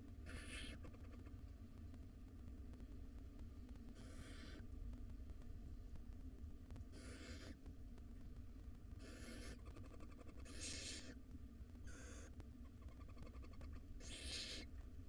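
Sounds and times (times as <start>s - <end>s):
steady low hum: 0.0s - 15.0s
owl nestlings hissing: 0.3s - 0.8s, 4.0s - 4.6s, 7.0s - 7.6s, 9.0s - 9.6s, 10.4s - 11.2s, 14.0s - 14.7s.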